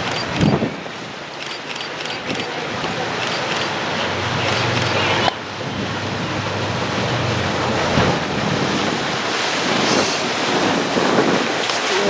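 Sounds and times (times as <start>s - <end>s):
wind buffeting microphone: 0.0s - 1.2s, 5.2s - 12.0s
water rushing along hull: 0.0s - 12.0s.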